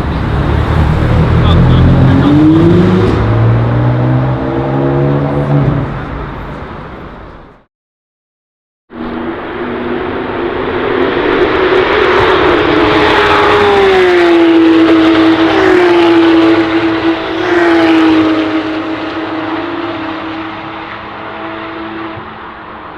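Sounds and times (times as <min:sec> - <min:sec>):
sports car engine accelerating: 0:00.0 - 0:06.1.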